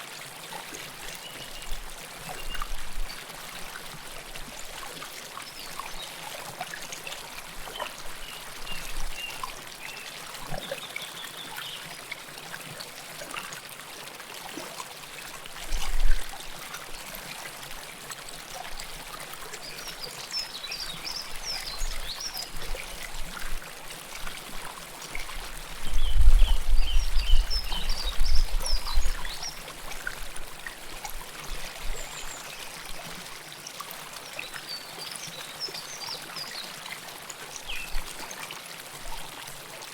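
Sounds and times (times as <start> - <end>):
river water trickling: 0.0 - 39.9.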